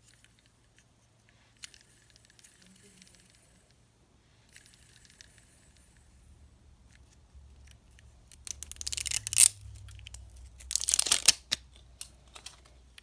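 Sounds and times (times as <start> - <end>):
plastic candy wrapper crinkling: 8.3 - 12.7.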